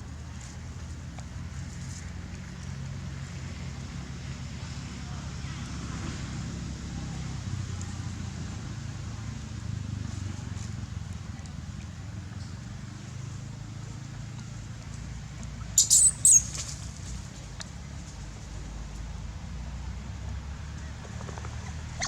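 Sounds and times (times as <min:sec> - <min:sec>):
low background rumble: 0:00.0 - 0:22.0
baby monkey squealing: 0:15.8 - 0:16.6.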